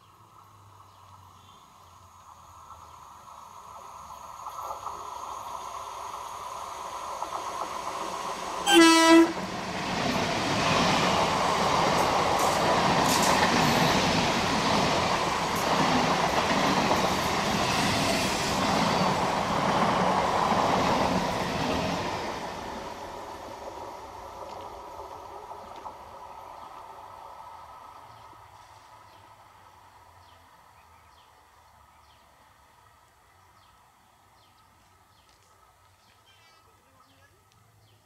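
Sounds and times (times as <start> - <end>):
train wheels rumbling on rails: 2.3 - 30.4
train horn blast: 8.6 - 9.5.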